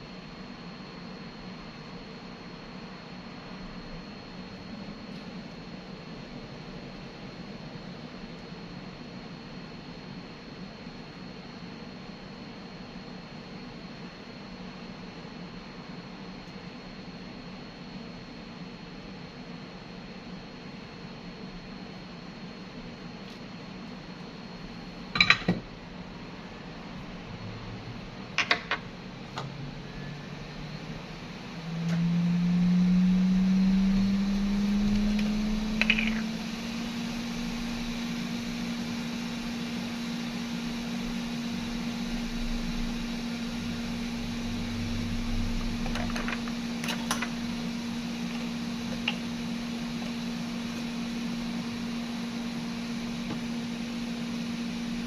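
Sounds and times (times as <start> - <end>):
electric fan motor humming: 26.2 - 55.0.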